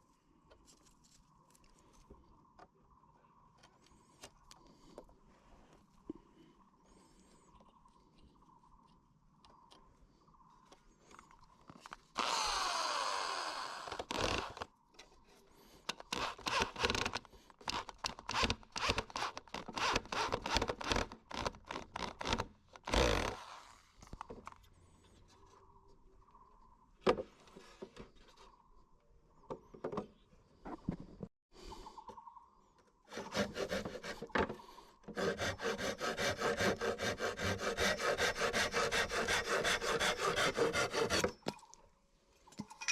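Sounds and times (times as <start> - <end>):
power tool running: 12.2 - 14.6.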